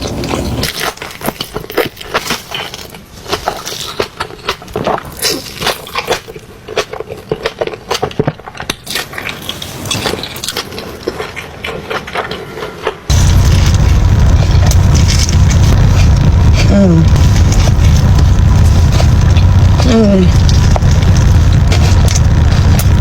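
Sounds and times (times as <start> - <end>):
crunching crisp food: 0.0 - 23.0
loud low rumbling noise: 13.1 - 23.0.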